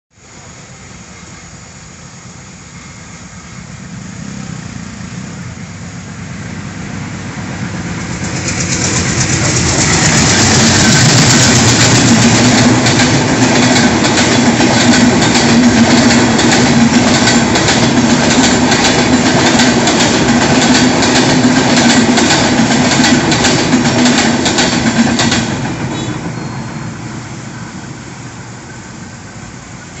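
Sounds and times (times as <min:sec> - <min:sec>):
passenger train passing at speed: 0:00.2 - 0:30.0
wheels clattering over rail joints: 0:08.0 - 0:26.5.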